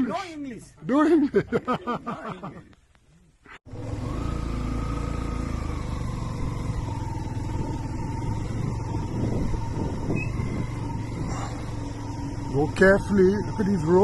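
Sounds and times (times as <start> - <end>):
road noise: 3.6 - 14.0
motorcycle engine running: 3.7 - 14.0.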